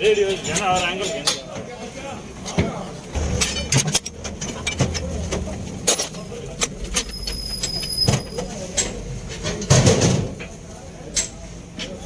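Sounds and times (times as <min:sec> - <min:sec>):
steady low hum: 0:03.0 - 0:07.5
heavy steel parts clanking: 0:03.1 - 0:10.5.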